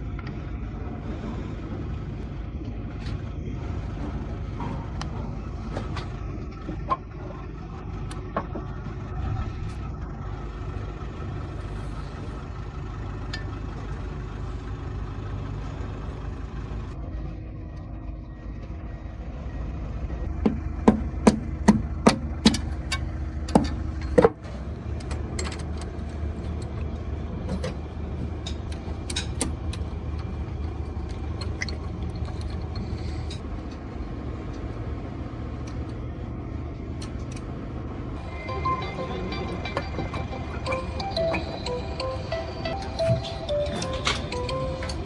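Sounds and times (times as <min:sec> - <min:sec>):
vehicle engine rumbling: 0:00.0 - 0:45.0
sharp knocks: 0:20.4 - 0:24.4.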